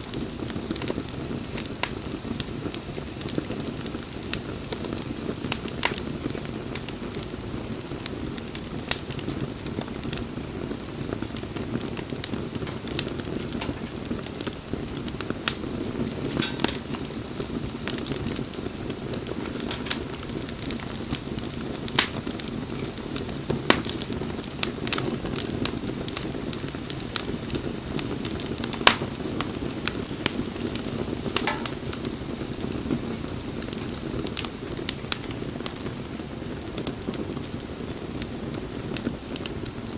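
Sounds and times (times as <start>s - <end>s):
campfire crackles and pops: 0.0s - 39.9s
flames rushing: 0.0s - 39.9s.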